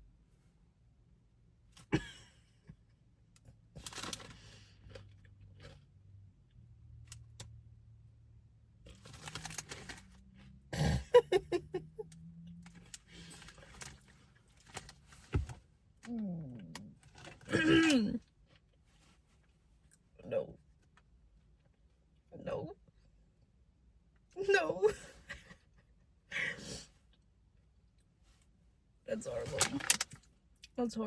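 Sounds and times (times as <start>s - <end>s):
crisps crunching: 3.8s - 5.9s, 8.9s - 10.4s, 29.4s - 30.3s.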